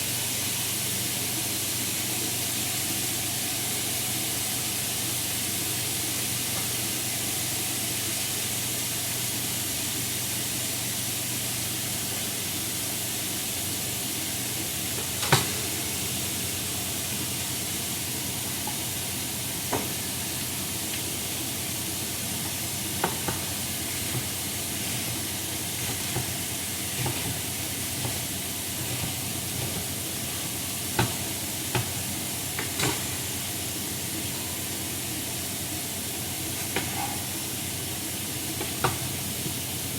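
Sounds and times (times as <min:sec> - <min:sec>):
food sizzling in frying pan: 0:00.0 - 0:39.9
utensil knocking on pan: 0:22.4 - 0:30.1, 0:30.9 - 0:32.0.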